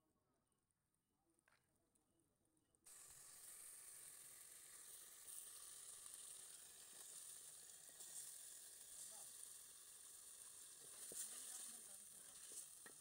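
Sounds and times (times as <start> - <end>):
chicken sizzling in hot oil: 2.9 - 13.0.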